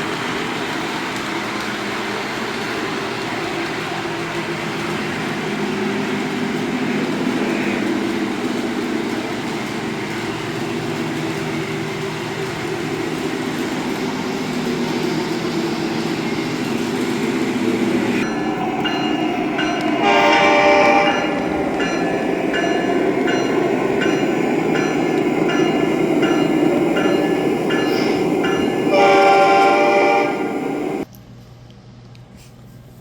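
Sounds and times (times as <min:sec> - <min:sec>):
model train rumbling on rails: 0:00.0 - 0:31.1.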